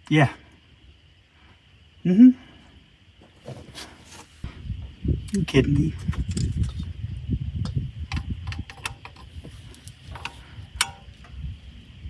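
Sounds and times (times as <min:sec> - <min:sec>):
hand tools clicking on engine: 0:08.1 - 0:11.4.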